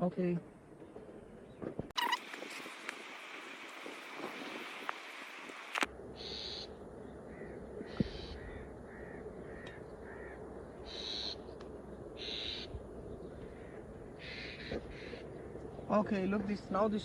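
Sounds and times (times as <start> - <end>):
steady low hum: 0.0 - 17.0
birds making harsh calls: 6.2 - 16.1.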